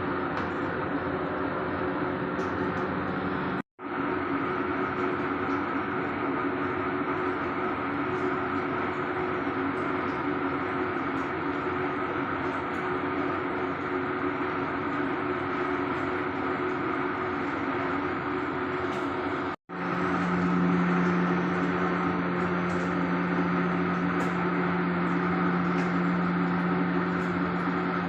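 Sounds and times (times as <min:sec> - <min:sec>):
speedboat engine drone: 0:18.0 - 0:28.0.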